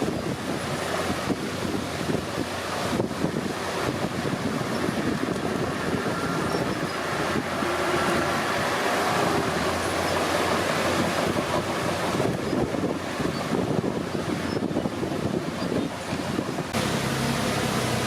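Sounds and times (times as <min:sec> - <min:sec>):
bulldozer engine and tracks: 0:00.0 - 0:18.0.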